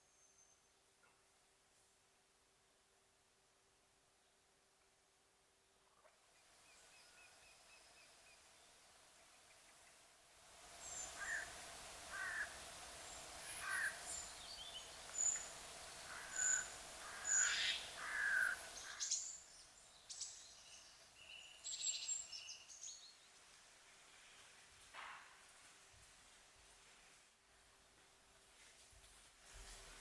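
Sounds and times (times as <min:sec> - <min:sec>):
steady outdoor hiss: 0:00.0 - 0:30.0
wild birds calling: 0:10.7 - 0:20.4.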